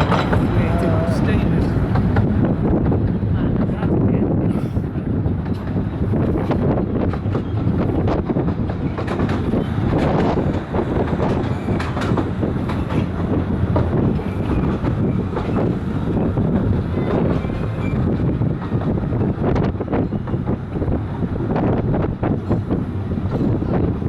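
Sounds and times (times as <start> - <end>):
track clicks and clatter: 0.0 - 4.0, 5.2 - 24.0
train wheels rumbling on track: 0.0 - 24.0.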